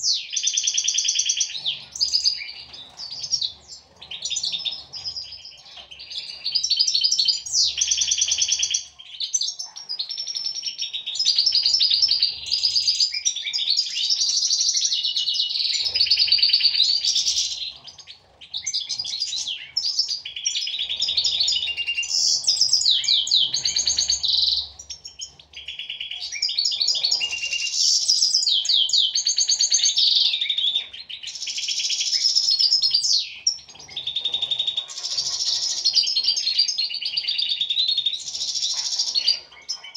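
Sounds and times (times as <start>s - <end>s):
goldfinches singing: 10.6s - 39.9s.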